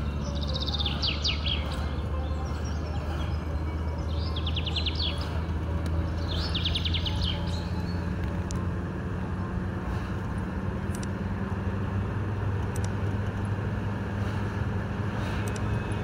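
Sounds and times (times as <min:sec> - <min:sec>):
songbird trilling: 0:00.0 - 0:08.1
car hum: 0:00.0 - 0:16.0.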